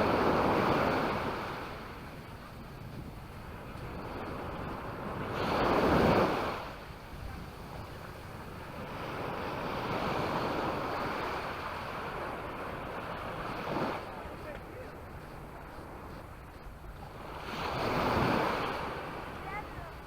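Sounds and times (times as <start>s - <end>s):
sea waves washing onto beach: 0.0s - 20.0s.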